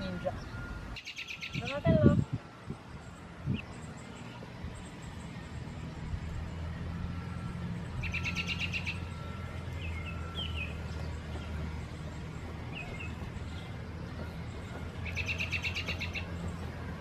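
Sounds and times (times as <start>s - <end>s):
songbirds singing: 0.0s - 17.0s.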